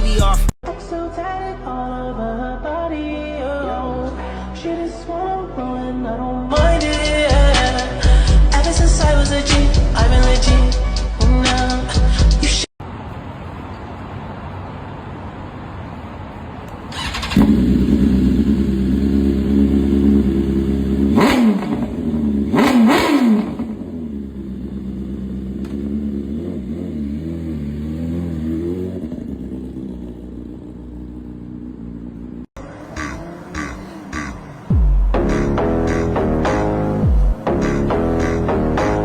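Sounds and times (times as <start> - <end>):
motorcycle engine running: 17.0 - 39.0.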